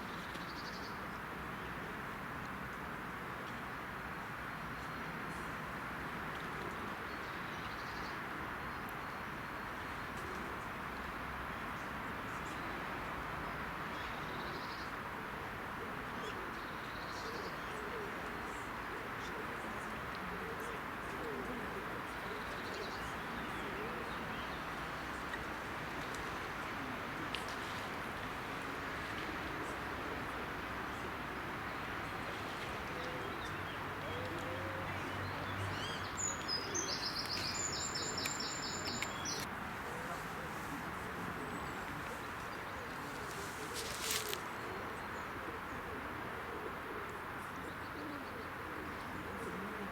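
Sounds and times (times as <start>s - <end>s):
steady background noise: 0.0s - 49.9s
steady outdoor hiss: 0.0s - 49.9s
small birds twittering: 33.0s - 45.8s.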